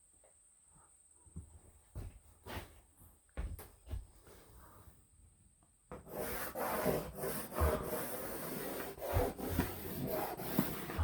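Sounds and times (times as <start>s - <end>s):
pencil scratching on paper: 6.1s - 11.0s.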